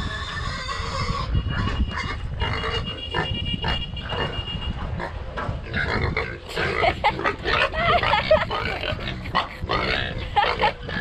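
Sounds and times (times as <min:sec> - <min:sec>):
pig grunting: 0:05.7 - 0:11.0.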